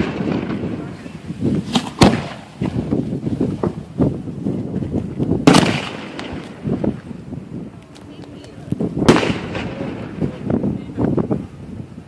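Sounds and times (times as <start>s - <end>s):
fireworks pops: 0.0s - 3.9s, 4.6s - 7.2s, 7.8s - 10.5s
fireworks bangs: 0.0s - 11.5s.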